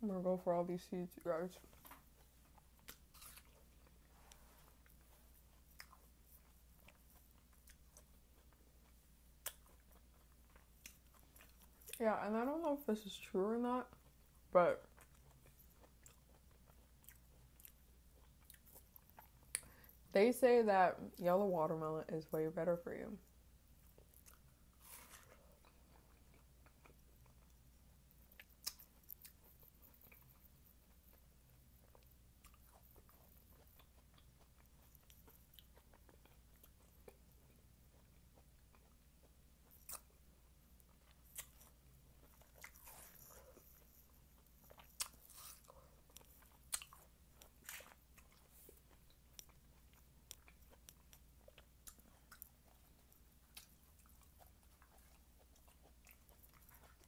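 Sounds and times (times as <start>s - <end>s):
faint chewing: 0.8s - 20.2s, 22.3s - 57.0s
small crunches: 1.7s - 8.1s, 41.2s - 49.6s.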